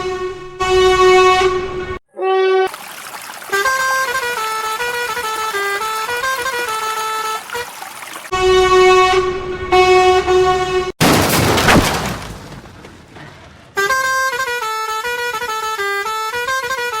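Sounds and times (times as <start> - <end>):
truck horn blasts: 0.0 - 2.0, 8.3 - 10.9, 13.8 - 17.0.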